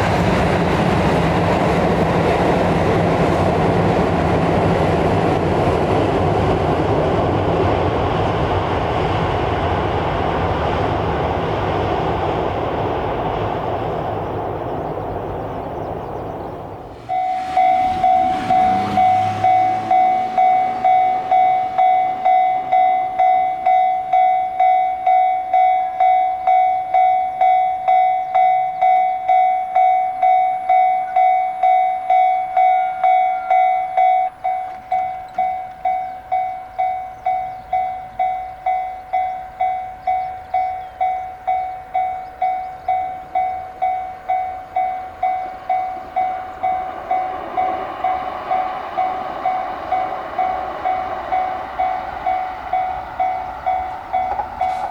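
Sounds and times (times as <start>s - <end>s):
level-crossing warning bell: 17.0s - 54.9s.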